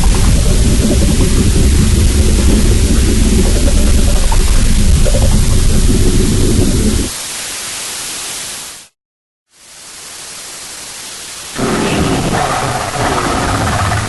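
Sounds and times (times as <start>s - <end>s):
low rumble: 0.0s - 7.1s
steady humming tones: 0.0s - 7.1s
loud hissing static: 0.0s - 8.9s, 9.5s - 14.0s.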